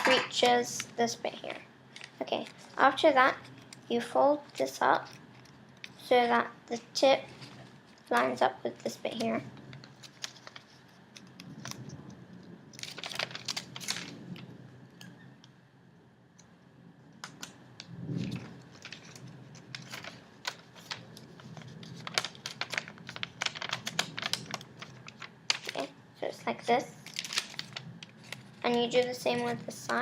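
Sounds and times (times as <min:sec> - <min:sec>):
paper being folded and creased: 0:07.2 - 0:11.9, 0:12.8 - 0:14.4, 0:18.2 - 0:30.0.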